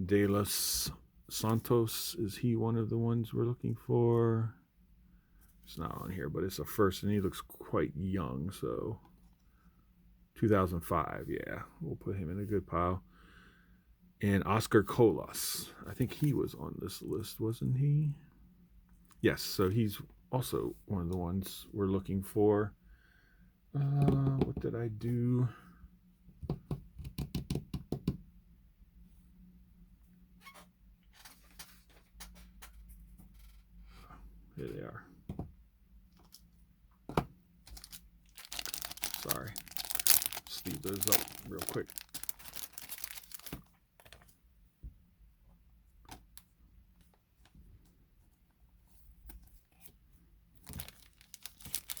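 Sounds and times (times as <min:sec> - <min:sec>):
cards and wrappers rustling: 0:37.6 - 0:44.4, 0:50.6 - 0:52.0.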